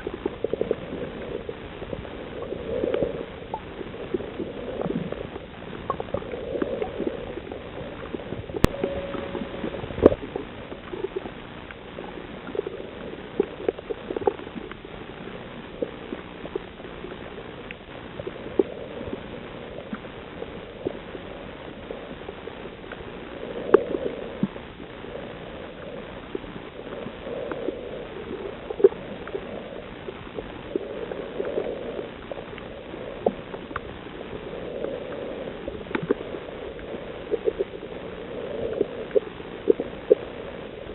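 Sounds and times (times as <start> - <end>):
muffled underwater rush: 0.0 - 40.9
sharp clicks and crackles: 0.0 - 40.9.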